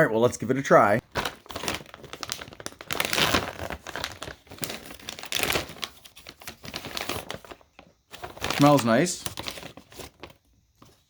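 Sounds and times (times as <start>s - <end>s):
plastic snack bag crinkling: 1.0s - 11.0s.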